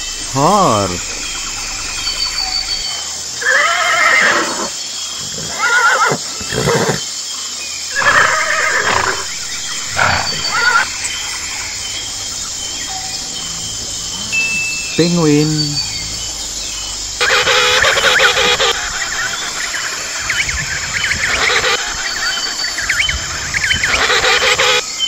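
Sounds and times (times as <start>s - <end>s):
steady hiss: 0.0s - 23.4s
horse neighing: 3.4s - 7.1s, 7.9s - 11.1s.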